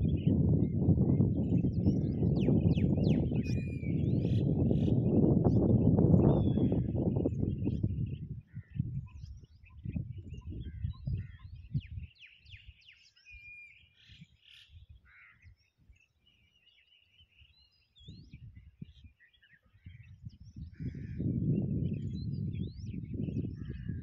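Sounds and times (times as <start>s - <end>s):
birds chirping and whistling: 0.0s - 24.0s.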